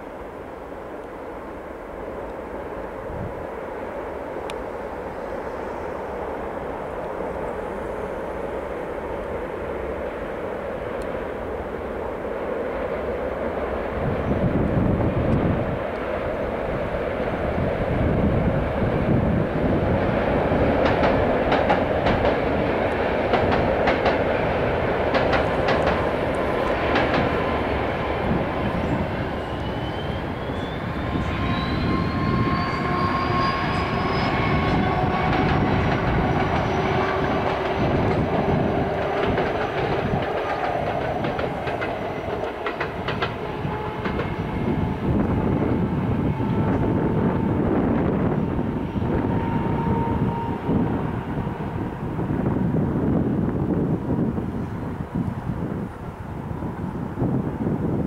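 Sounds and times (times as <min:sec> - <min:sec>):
train wheels clattering over rails: 0:19.7 - 0:31.3, 0:32.8 - 0:45.8
high whine: 0:25.4 - 0:52.6.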